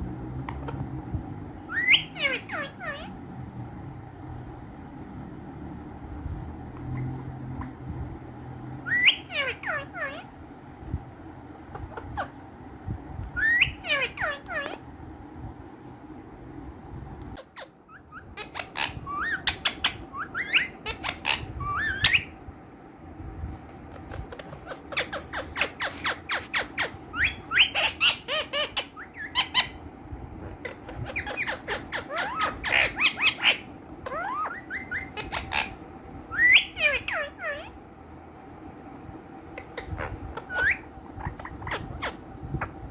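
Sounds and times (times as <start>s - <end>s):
faint steady hum: 0.0s - 42.9s
parakeets squawking: 1.6s - 3.2s, 8.8s - 10.4s, 13.4s - 14.8s, 17.4s - 22.4s, 23.9s - 29.8s, 30.4s - 37.8s, 39.6s - 42.8s.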